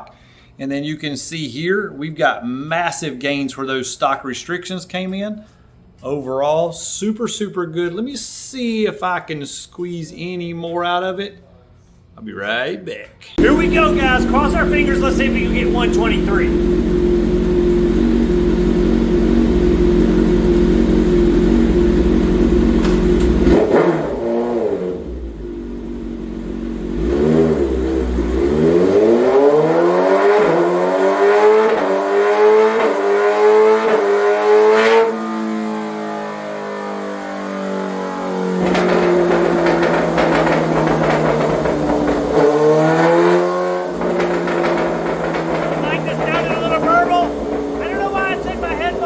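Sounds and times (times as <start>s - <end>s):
motorcycle engine revving: 13.4s - 49.0s.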